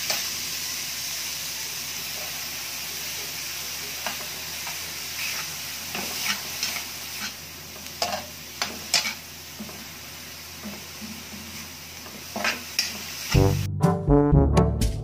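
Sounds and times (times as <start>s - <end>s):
meat sizzling in a wok: 0.0s - 13.7s
metal spatula scraping pan: 8.0s - 9.2s.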